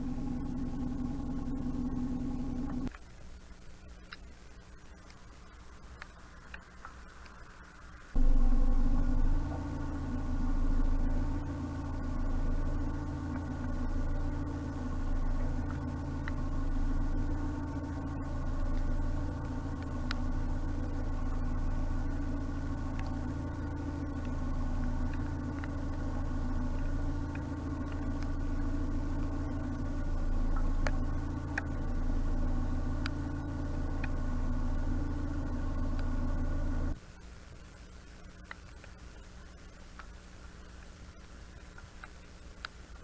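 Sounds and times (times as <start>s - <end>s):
diesel engine running: 0.0s - 2.9s, 8.1s - 37.0s
faint clicks: 0.1s - 7.8s, 9.1s - 37.0s, 38.1s - 43.0s.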